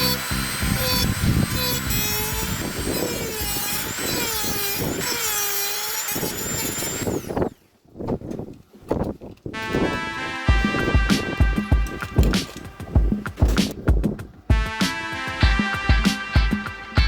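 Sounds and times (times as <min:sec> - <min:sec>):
power tool whining: 0:00.0 - 0:07.8.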